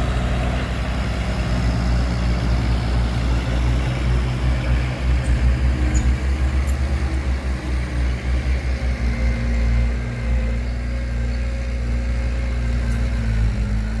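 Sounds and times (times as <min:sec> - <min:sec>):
heavy diesel engine rumbling: 0:00.0 - 0:14.0.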